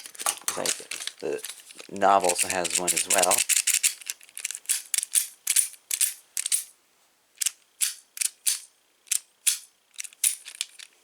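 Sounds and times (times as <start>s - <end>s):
metal door parts clicking: 7.4s - 11.0s.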